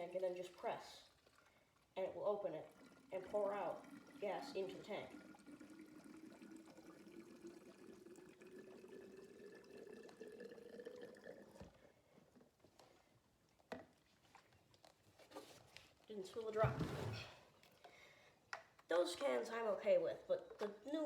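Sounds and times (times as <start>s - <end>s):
fuel pouring into a tank: 0.1s - 12.9s.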